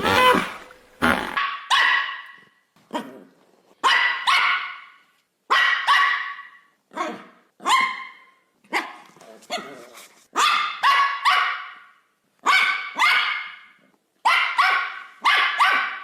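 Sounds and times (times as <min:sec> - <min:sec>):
dog barking with echo: 0:14.3 - 0:16.0.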